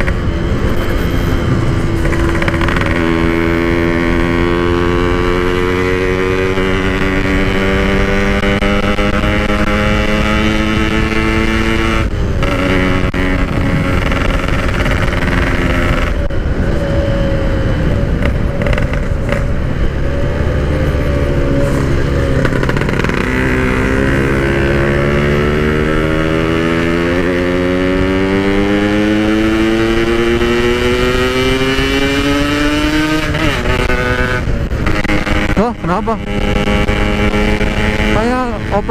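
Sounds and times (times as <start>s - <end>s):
two-stroke motorcycle engine revving: 0.0s - 38.9s.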